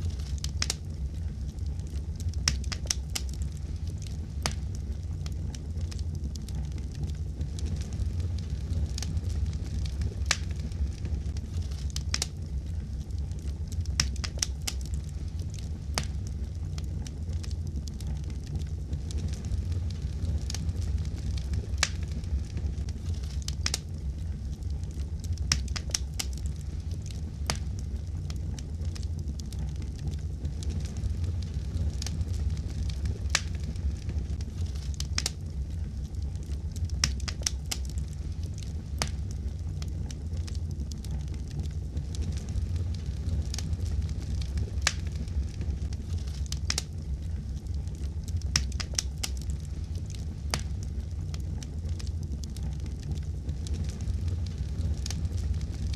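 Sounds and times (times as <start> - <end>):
fire crackling and popping: 0.0 - 55.9
wood fire rumbling: 0.0 - 55.9.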